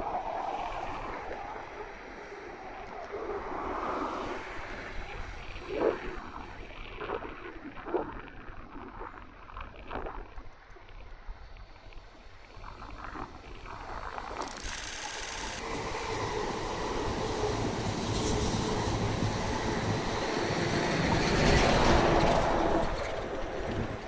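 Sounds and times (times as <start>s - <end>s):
train running noise: 14.4s - 24.0s.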